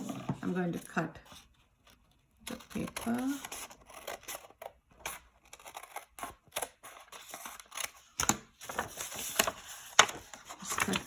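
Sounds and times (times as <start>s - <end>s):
scissors snipping paper: 2.5s - 11.0s.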